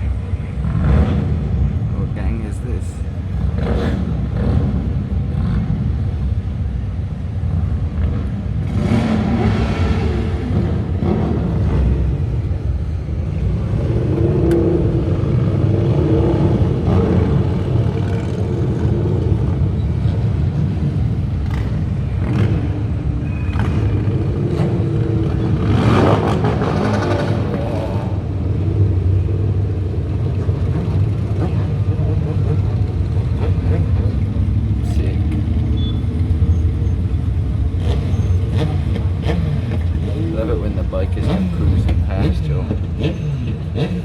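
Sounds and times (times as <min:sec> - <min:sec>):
motorcycle engines rumbling and revving: 0:00.0 - 0:44.0.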